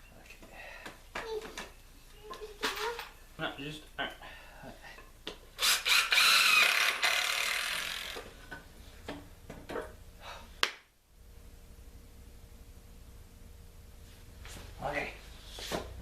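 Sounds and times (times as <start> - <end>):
drill working wood: 5.6 - 8.3.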